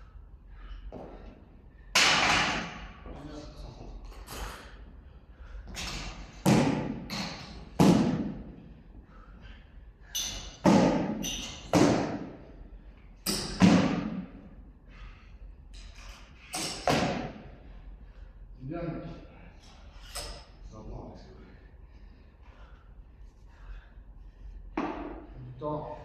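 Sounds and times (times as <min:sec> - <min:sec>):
gym equipment thudding on floor: 0:13.3 - 0:14.2.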